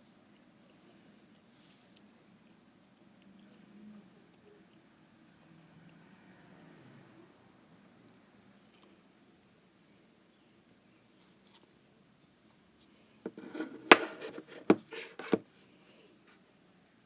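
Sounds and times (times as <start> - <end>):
rustling: 12.8 - 15.4
phones clicking and knocking: 13.3 - 15.4.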